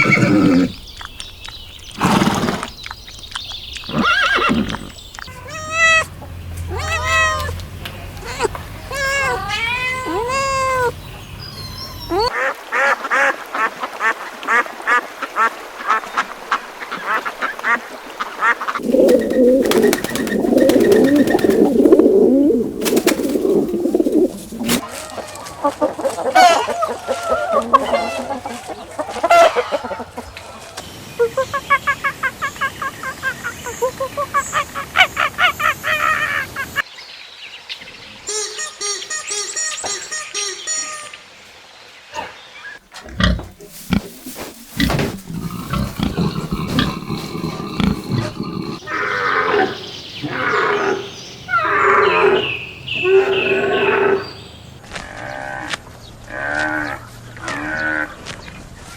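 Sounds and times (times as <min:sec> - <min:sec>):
ducks quacking: 0:43.0 - 0:52.5.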